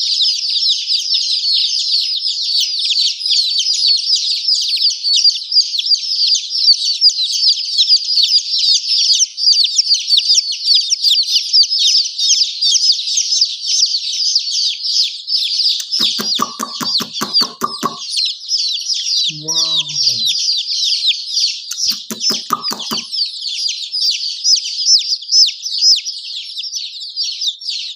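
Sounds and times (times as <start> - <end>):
baby chicks peeping: 0.0 - 27.9
sharp clicks or clucks: 15.8 - 18.2, 19.3 - 20.3, 21.7 - 23.1.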